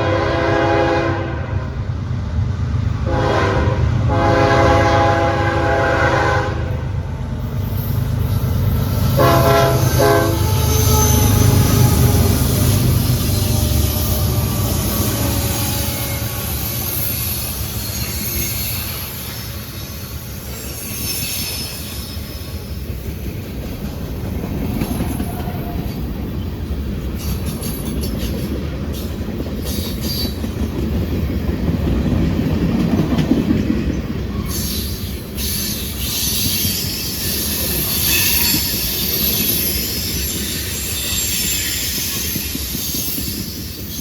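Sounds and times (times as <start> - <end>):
freight train rumble: 0.0 - 44.0
train wheels squealing: 7.3 - 31.6, 32.9 - 44.0
wheels clicking over rail joints: 20.3 - 44.0.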